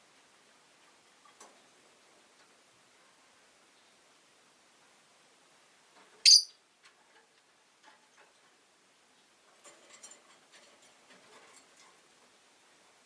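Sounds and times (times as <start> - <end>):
lovebirds clicking and tapping: 6.3 - 6.5.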